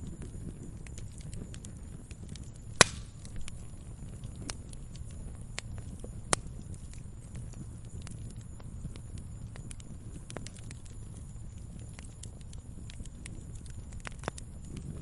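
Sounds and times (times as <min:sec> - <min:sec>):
loud sharp pops of fire: 0:00.0 - 0:15.0
wood fire crackling: 0:00.0 - 0:15.0.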